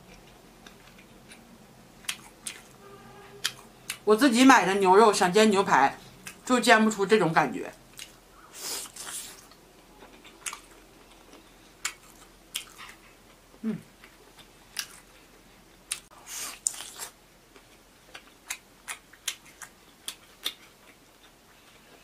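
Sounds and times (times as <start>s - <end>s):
person chewing steak: 0.1s - 2.8s, 3.4s - 4.0s, 7.9s - 22.0s.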